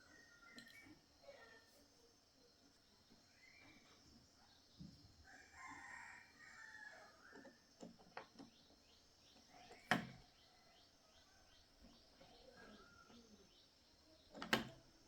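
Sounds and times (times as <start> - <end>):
rooster crowing: 5.3 - 7.3.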